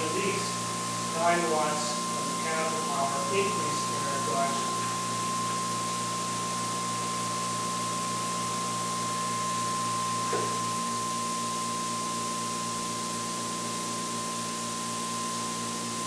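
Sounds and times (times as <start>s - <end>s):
electric motor whine: 0.0s - 11.4s.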